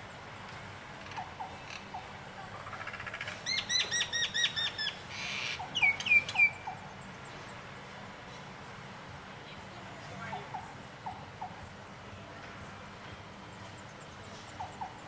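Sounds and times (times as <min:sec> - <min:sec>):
steady background hiss: 0:00.0 - 0:15.0
songbird chirps and whistles: 0:03.4 - 0:06.8.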